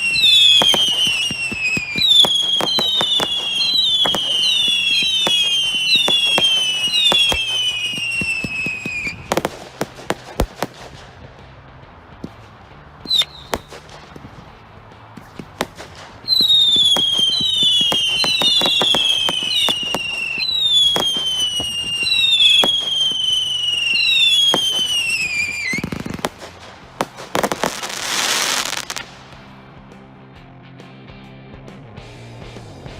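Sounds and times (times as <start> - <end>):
shrill firework whistles: 0.0 - 9.5, 13.1 - 13.8, 16.2 - 26.2
firework reports: 0.0 - 29.7.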